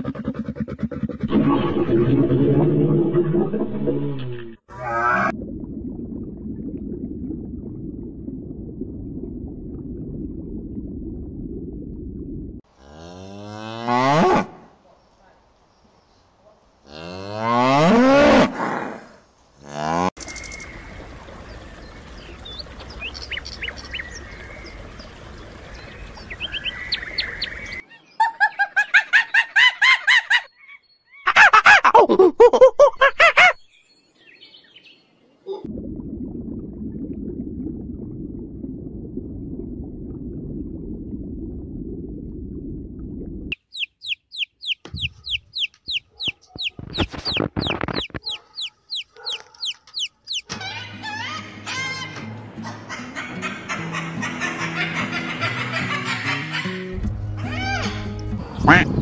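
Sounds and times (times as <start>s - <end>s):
birds chirping faintly: 20.2s - 28.8s, 43.5s - 50.5s
chick peeping: 43.5s - 50.5s
monkey calling: 43.8s - 50.5s.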